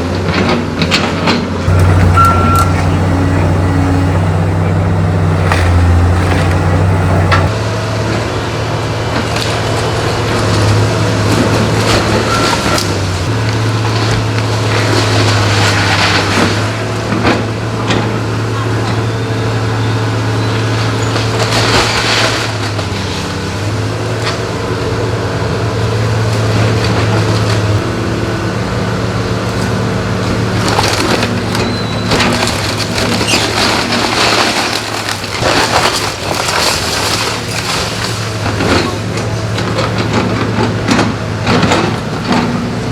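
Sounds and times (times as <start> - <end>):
heavy machine engine hum: 0.0 - 42.9
debris crashing: 0.3 - 7.6, 9.0 - 19.2, 20.7 - 24.6, 25.4 - 42.9
timber cracking and splintering: 9.2 - 17.4, 21.2 - 24.5, 29.4 - 42.9.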